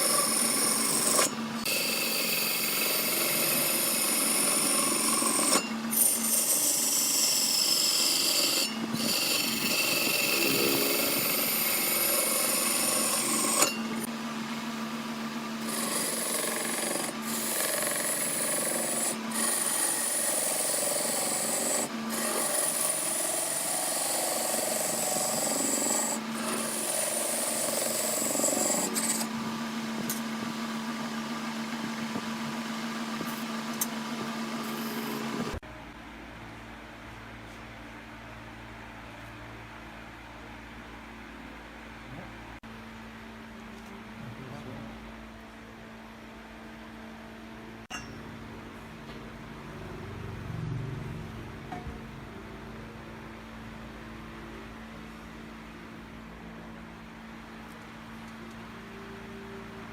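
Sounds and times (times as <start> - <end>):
lathe tool scraping wood: 0.0 - 14.1, 15.5 - 31.8, 33.2 - 35.6
lathe motor hum: 0.0 - 35.6.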